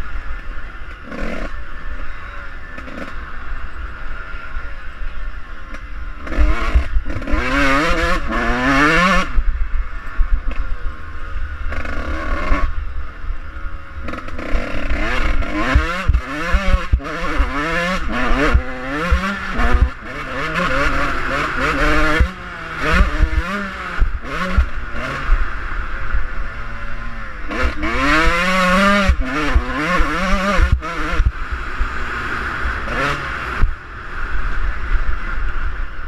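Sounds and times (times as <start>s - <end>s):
dirt bike engine revving: 0.0s - 35.4s.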